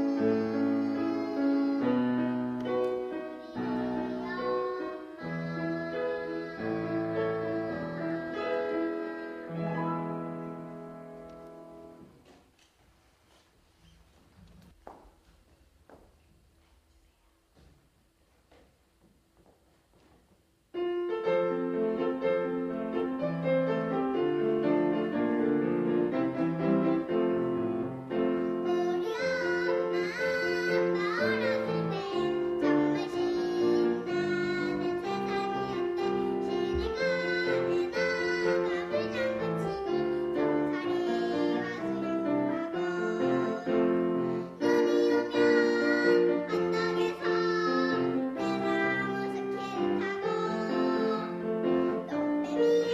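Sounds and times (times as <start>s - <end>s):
young child singing: 0.0s - 12.0s, 28.4s - 52.9s
piano accompaniment: 0.0s - 12.5s, 20.3s - 52.9s.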